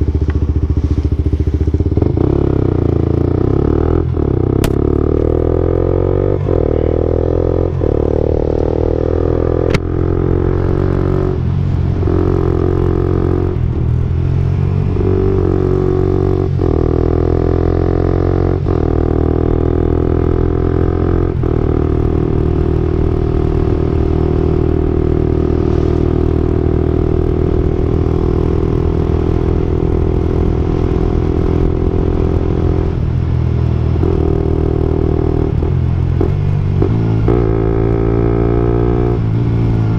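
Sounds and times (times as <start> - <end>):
motorcycle exhaust note: 0.0 - 39.9.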